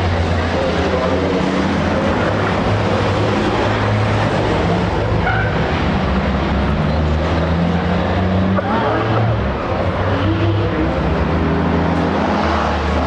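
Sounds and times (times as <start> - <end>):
truck engines droning: 0.0 - 13.0.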